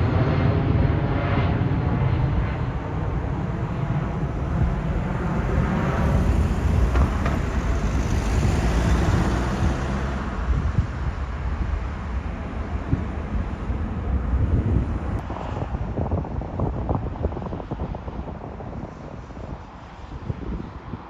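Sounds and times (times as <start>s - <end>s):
jet airliner engine noise: 0.0s - 21.0s
wind rumbling on microphone: 0.0s - 21.0s.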